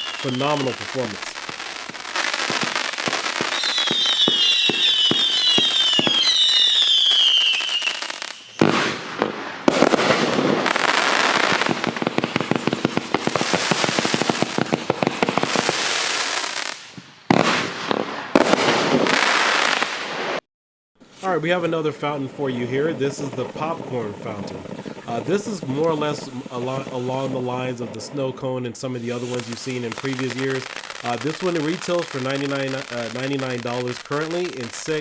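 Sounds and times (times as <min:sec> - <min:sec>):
firework whistles sliding down: 0:00.0 - 0:08.8
rapid firework shots and crackling: 0:00.0 - 0:20.4, 0:23.3 - 0:27.7, 0:29.1 - 0:35.0.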